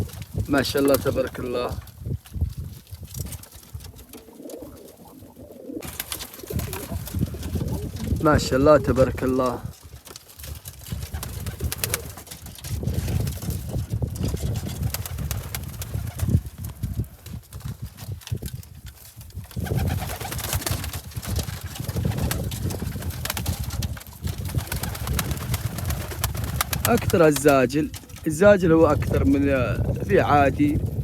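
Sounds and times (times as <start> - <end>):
wing flaps: 0.0 - 28.4
scuffling clicks: 0.7 - 8.1
pigeons cooing: 3.8 - 9.5.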